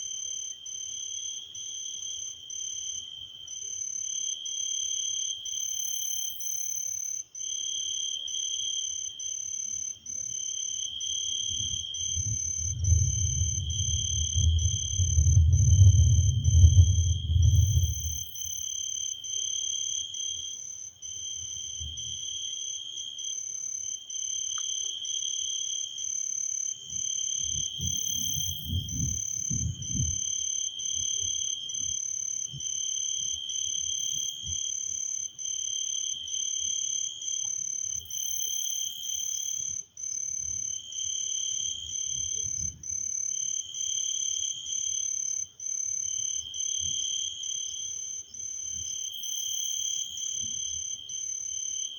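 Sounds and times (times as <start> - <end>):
frogs calling in long pulses: 0.0 - 51.9
low rumble: 12.3 - 18.2.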